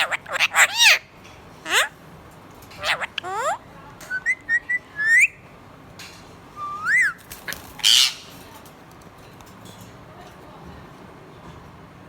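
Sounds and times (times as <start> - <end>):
parakeets whistling and chirping: 0.0 - 1.0, 1.6 - 1.9, 2.8 - 5.4, 6.6 - 7.2
parakeet squawk: 0.0 - 2.0, 2.7 - 3.6, 6.9 - 8.3.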